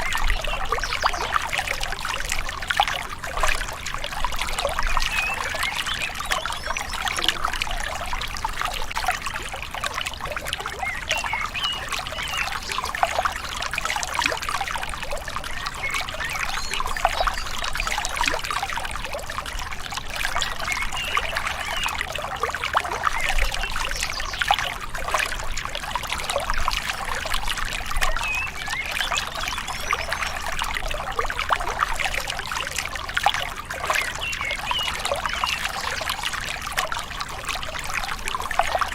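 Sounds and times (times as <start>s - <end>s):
river babbling: 0.0s - 38.9s.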